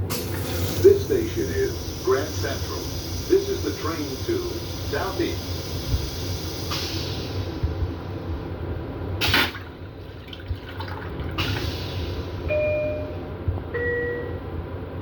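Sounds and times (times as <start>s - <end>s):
railcar low rumble: 0.0s - 15.0s.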